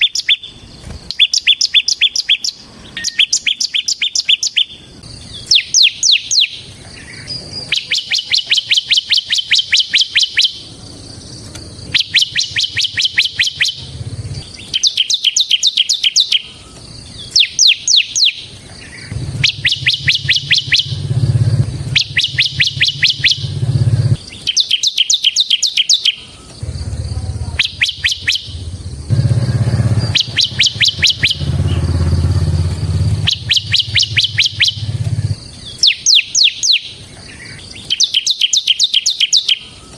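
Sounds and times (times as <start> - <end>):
bird rapid drilling song: 0.0 - 39.9
low rumble: 13.8 - 14.4, 19.1 - 24.2, 26.6 - 35.4.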